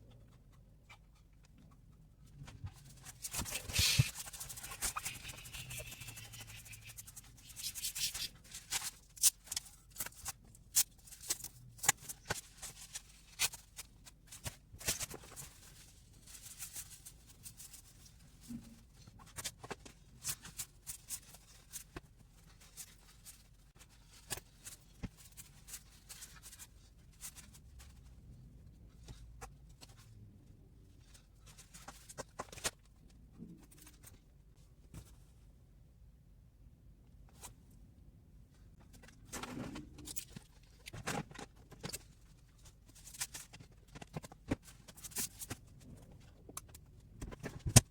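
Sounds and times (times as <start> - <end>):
gear rustling and rubbing: 2.4 - 9.0.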